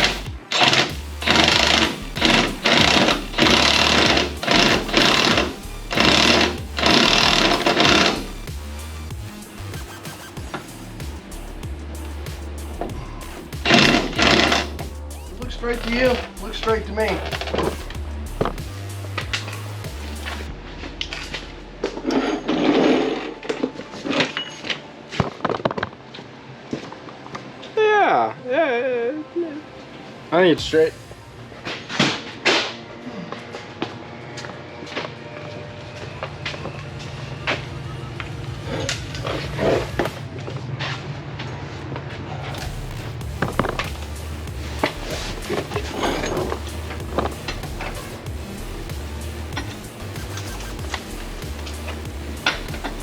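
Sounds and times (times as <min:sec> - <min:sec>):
power wrench rattling: 0:00.0 - 0:08.4, 0:12.8 - 0:18.5, 0:44.8 - 0:48.0.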